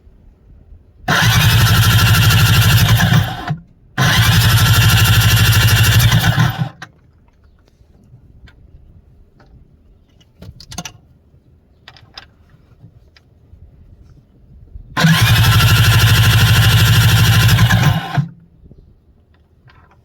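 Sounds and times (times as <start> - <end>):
jet ski engine running: 1.1 - 6.8, 15.0 - 18.3.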